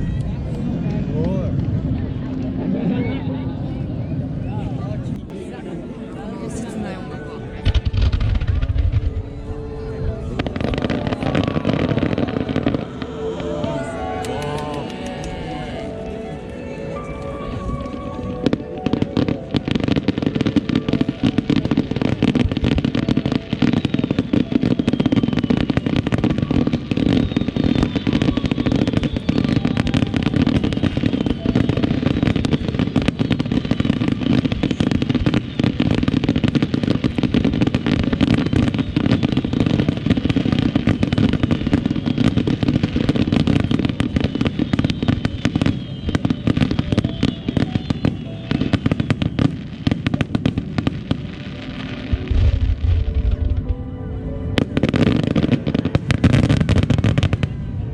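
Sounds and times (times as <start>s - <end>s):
fireworks cracks and booms: 7.6s - 53.8s, 54.6s - 57.6s
firework whistles: 17.0s - 53.6s.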